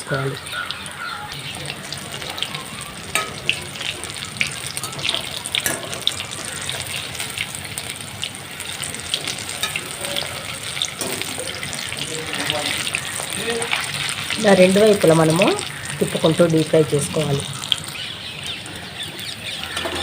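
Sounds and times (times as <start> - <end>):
deep-frying sizzle and pops: 0.0 - 20.0.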